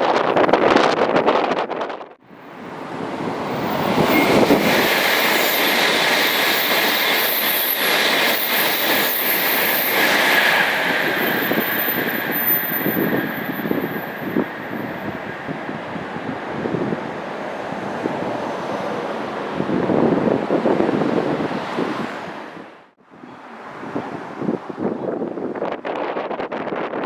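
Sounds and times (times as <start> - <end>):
bullet train passing at speed: 0.1 - 22.8
high whine: 2.3 - 15.9.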